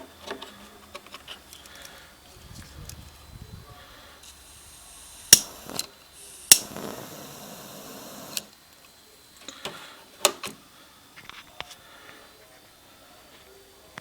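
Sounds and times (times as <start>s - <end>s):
hissing jet flame: 1.9s - 8.6s
lighter igniter clicks: 4.2s - 8.6s.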